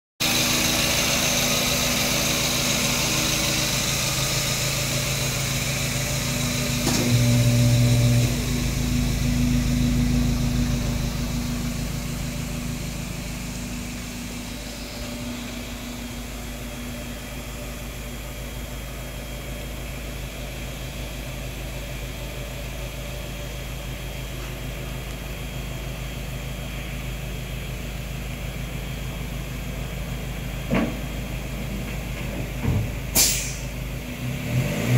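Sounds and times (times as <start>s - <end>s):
van engine exhaust idling: 0.2s - 34.9s.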